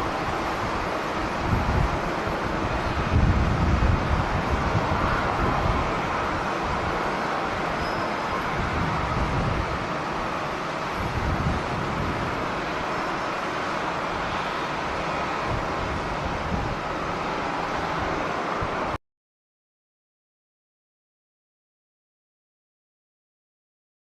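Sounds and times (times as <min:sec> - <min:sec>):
jet engines roaring: 0:00.0 - 0:19.0
wind buffeting microphone: 0:00.0 - 0:19.0.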